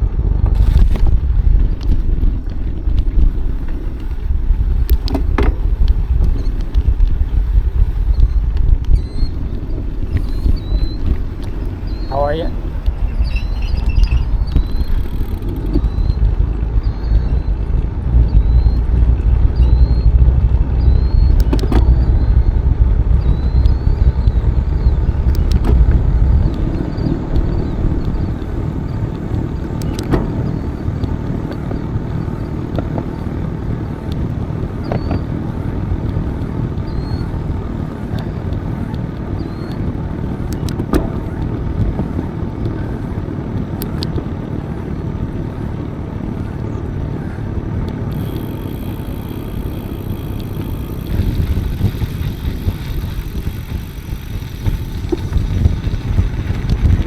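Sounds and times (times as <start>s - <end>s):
bicycle rolling noise: 0.0s - 57.0s
wind on microphone: 0.0s - 57.0s
sharp clicks: 0.4s - 17.3s, 20.8s - 22.6s, 23.2s - 31.6s, 40.5s - 42.1s, 47.9s - 57.0s
faint high chirps: 8.1s - 17.6s.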